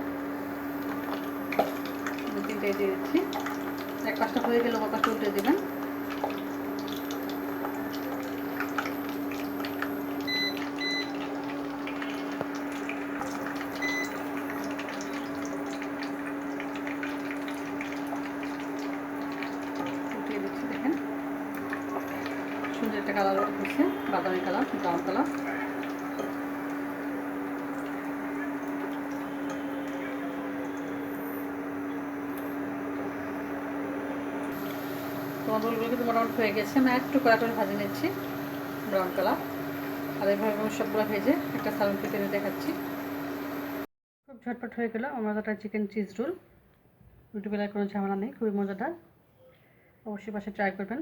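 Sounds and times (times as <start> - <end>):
food sizzling in oil: 0.0 - 29.6, 34.4 - 43.8.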